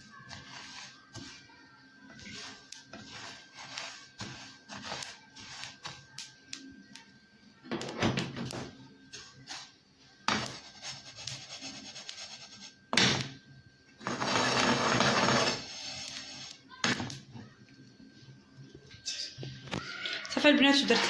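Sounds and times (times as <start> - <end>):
utensil scraping seeds in pan: 0.3 - 1.5, 2.1 - 6.0, 10.4 - 12.8, 14.0 - 16.6.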